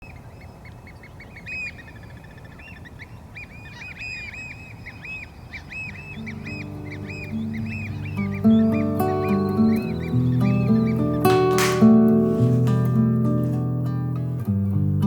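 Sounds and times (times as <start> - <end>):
birds chirping: 0.0 - 13.7
bird trill: 1.0 - 12.1.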